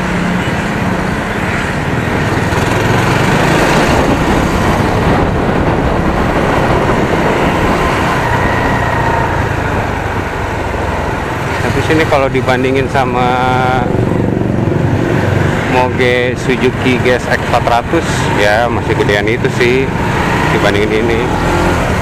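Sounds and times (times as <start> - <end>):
motorcycle engine running: 0.0 - 17.3
road traffic: 0.0 - 22.0
wind noise: 0.0 - 22.0.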